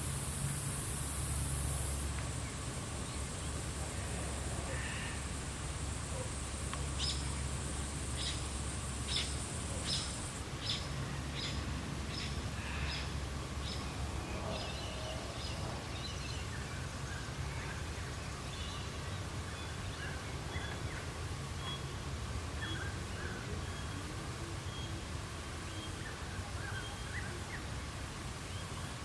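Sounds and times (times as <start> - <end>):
high-pitched hiss: 0.0 - 16.1.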